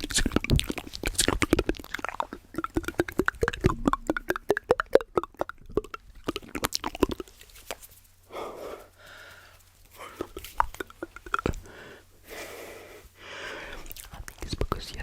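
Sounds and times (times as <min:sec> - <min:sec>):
wet mouth clicks and pops: 0:00.0 - 0:07.8, 0:10.2 - 0:11.6, 0:13.8 - 0:14.8.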